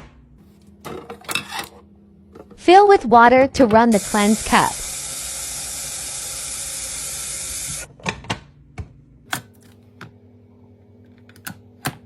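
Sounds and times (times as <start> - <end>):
tap water running: 3.8 - 7.9.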